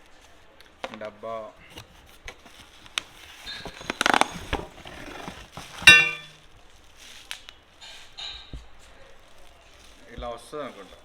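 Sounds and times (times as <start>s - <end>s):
cardboard box scraping and rustling: 1.8s - 6.2s
metal piece clanging: 4.9s - 6.3s.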